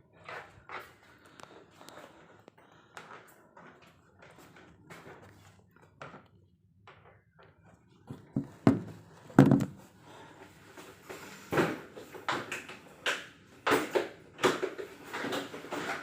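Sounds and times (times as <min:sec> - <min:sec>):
hard objects knocking and clattering: 0:06.8 - 0:09.9.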